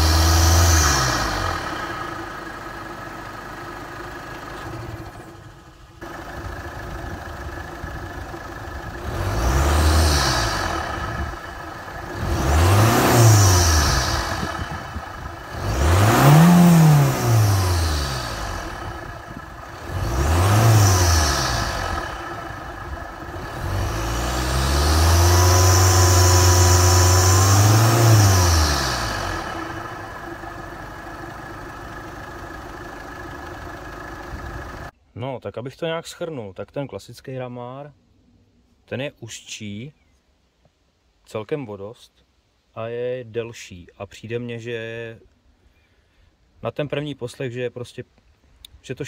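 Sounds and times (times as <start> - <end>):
diesel engine revving: 0.0 - 34.9.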